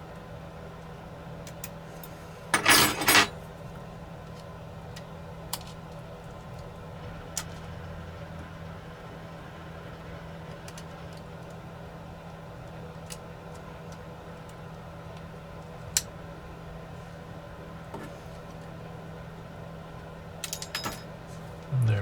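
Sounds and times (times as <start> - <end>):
tools clattering on a workbench: 2.6 - 3.4, 20.4 - 21.1
steady low hum: 21.6 - 22.0.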